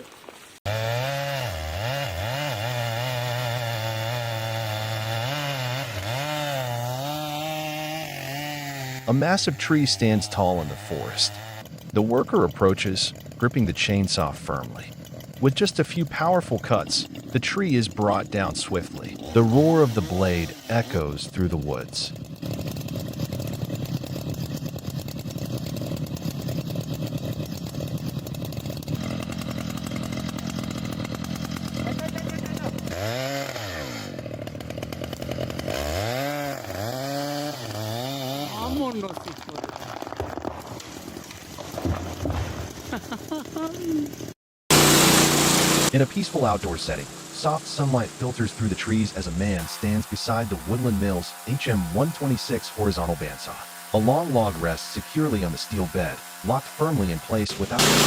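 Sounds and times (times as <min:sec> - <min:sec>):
chainsaw sawing wood: 0:00.6 - 0:58.0.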